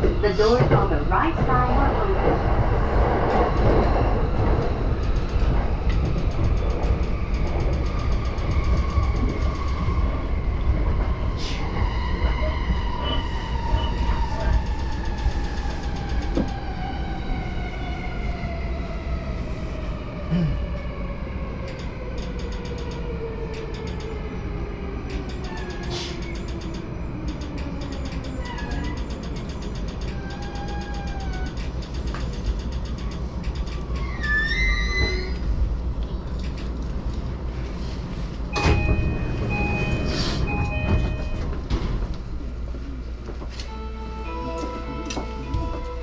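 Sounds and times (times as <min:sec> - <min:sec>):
train wheels rumbling on rails: 0:00.0 - 0:46.0.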